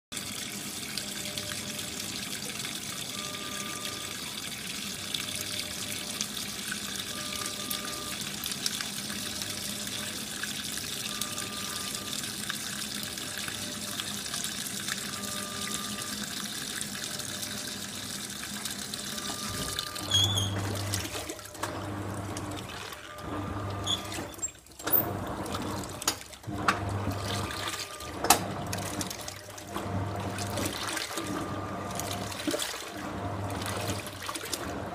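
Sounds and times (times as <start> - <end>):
water running into tub: 0.1 - 34.9
washing machine motor humming: 0.2 - 34.9
water sloshing: 24.2 - 34.8.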